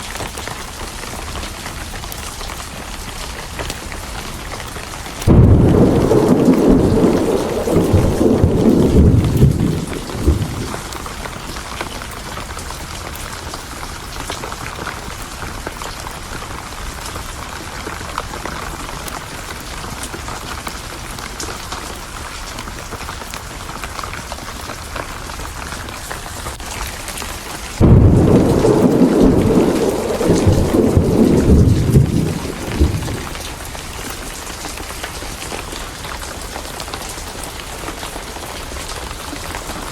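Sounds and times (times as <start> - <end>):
steady rain: 0.0 - 39.9
thunder rumbling: 5.2 - 11.9, 27.6 - 34.4.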